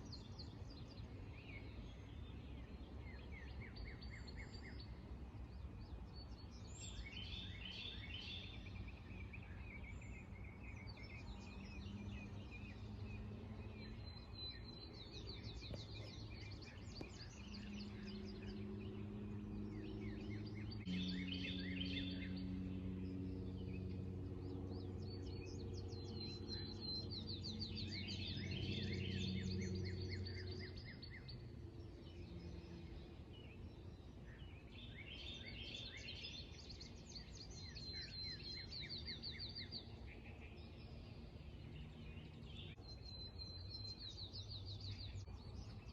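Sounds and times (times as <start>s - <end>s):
songbirds trilling and whistling: 0.0s - 45.9s
low droning hum: 11.0s - 42.9s.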